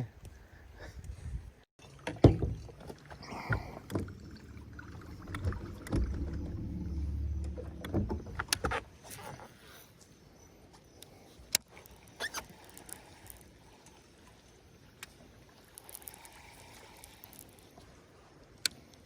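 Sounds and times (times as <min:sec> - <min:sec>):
knocks and bumps on boat: 0:02.0 - 0:08.9
low steady hum: 0:02.5 - 0:08.8.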